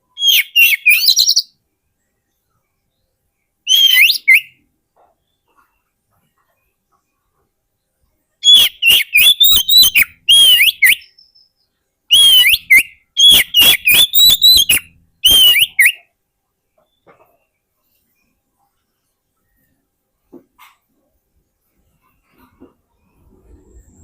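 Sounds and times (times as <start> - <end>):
bird singing whistled notes: 0.0 - 1.6, 2.4 - 4.6, 8.4 - 16.1.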